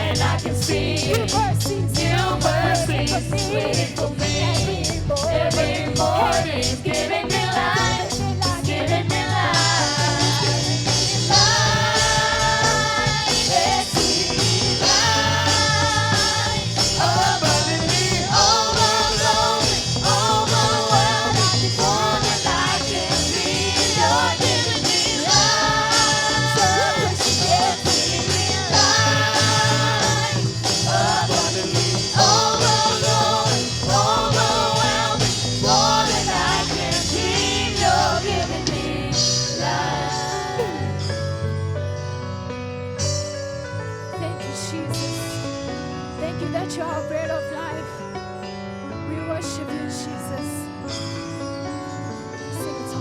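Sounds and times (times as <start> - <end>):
voices singing: 0.0 - 41.2
full band with steady beat: 0.0 - 46.8.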